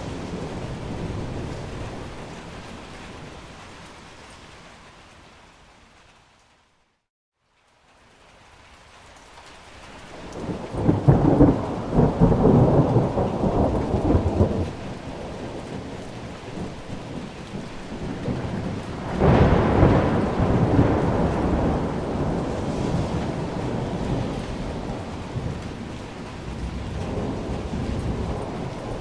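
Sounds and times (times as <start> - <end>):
thunder rumbling: 0.0 - 3.5, 10.2 - 29.0
rain hiss: 0.0 - 29.0.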